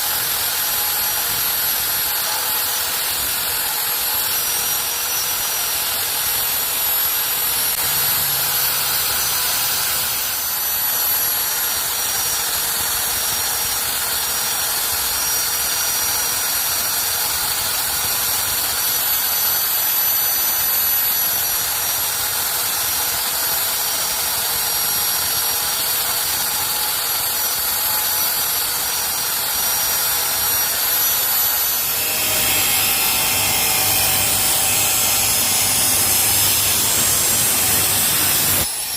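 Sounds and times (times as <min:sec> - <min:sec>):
power tool motor whining: 0:00.1 - 0:13.6, 0:25.6 - 0:38.9.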